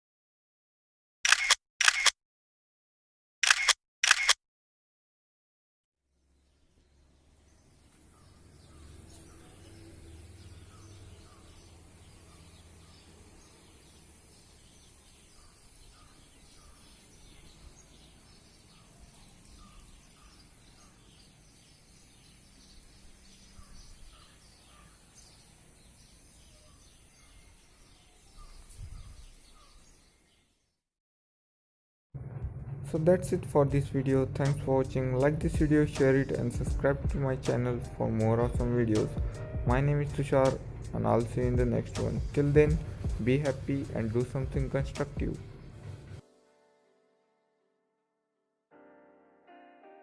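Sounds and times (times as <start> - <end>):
birds chirping: 6.3 - 30.8.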